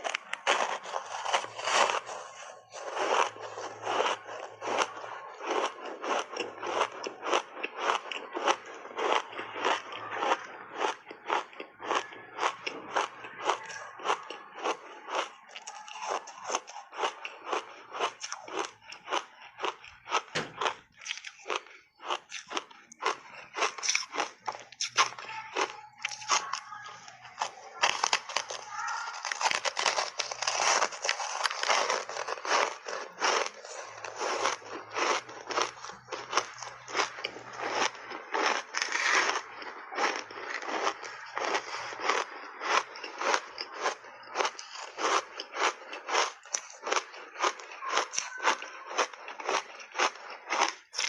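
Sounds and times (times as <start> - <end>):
ice crunching while chewed: 0.0 - 51.0.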